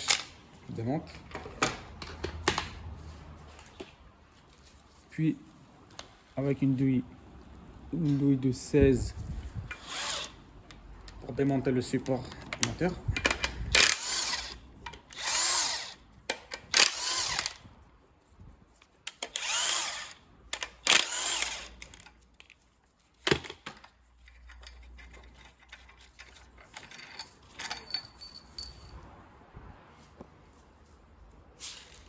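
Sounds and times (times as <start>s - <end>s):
handling of parts: 0.0s - 5.2s, 9.0s - 17.8s, 18.6s - 29.1s, 30.1s - 32.0s
power tool spinning: 9.7s - 10.4s, 13.8s - 16.0s, 16.7s - 17.6s, 19.2s - 22.0s.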